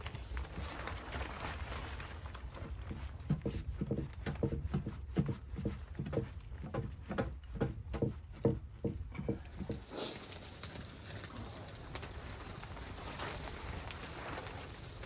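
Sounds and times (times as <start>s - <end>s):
steady hiss: 9.3s - 15.0s.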